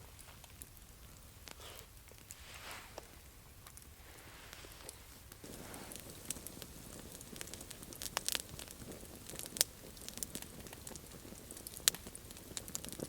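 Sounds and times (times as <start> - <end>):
campfire crackling: 0.0 - 13.0
sharp fire pops: 4.5 - 13.0.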